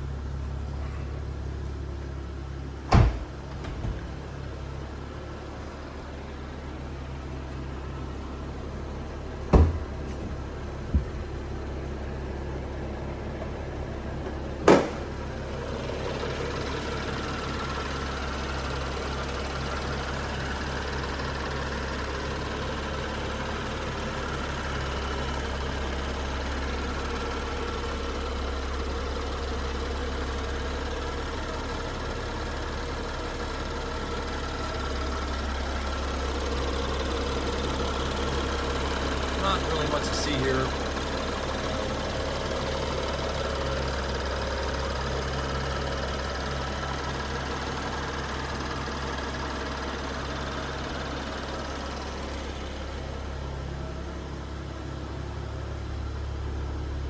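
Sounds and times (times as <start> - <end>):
car engine idling: 0.0 - 57.0
sharp engine knocks: 2.8 - 4.2, 9.5 - 11.4, 14.2 - 15.2.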